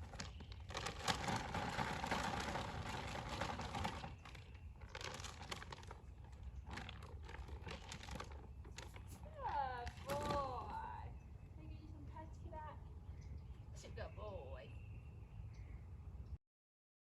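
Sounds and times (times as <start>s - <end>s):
plastic bag crinkling: 0.0s - 10.9s.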